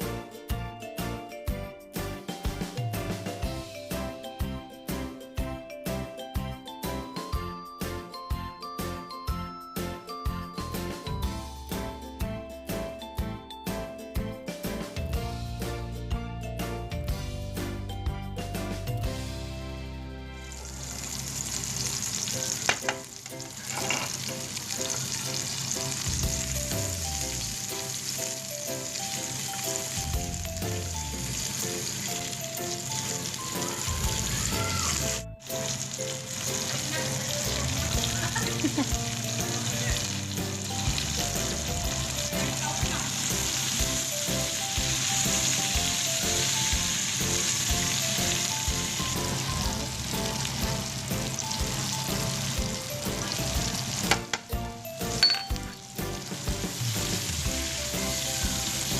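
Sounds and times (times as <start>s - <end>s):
soft background music: 0.0s - 58.9s
food sizzling in a pan: 20.4s - 58.9s.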